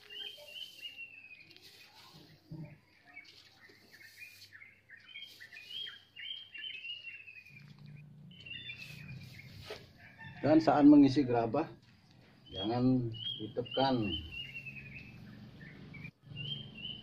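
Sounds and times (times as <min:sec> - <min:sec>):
rustling of rice husks: 0:00.0 - 0:06.6, 0:07.3 - 0:10.3
small birds chirping: 0:00.0 - 0:11.2, 0:11.8 - 0:17.0.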